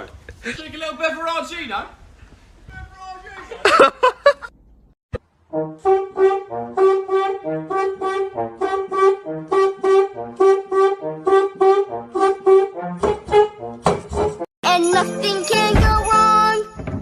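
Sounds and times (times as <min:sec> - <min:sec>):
bouncy brass music: 0:05.4 - 0:16.2.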